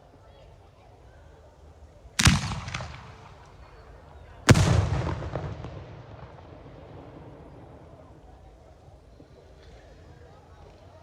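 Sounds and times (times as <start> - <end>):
firework bangs echoing: 2.2 - 8.3.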